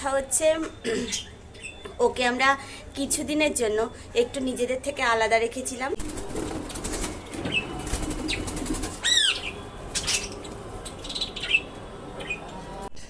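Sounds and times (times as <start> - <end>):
birds chirping: 0.7 - 5.4, 6.0 - 12.9
wing flapping: 6.0 - 11.0.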